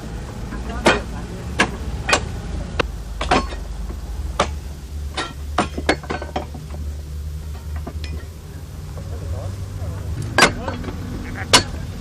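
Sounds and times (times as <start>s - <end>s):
hard objects knocking and clinking: 0.8s - 8.4s.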